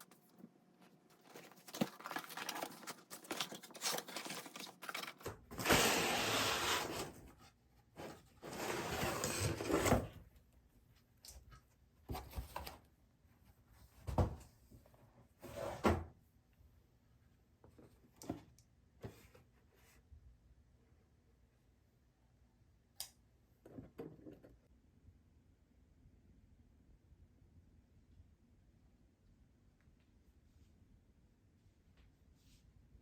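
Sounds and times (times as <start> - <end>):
packaging rustling loudly: 1.2 - 5.7.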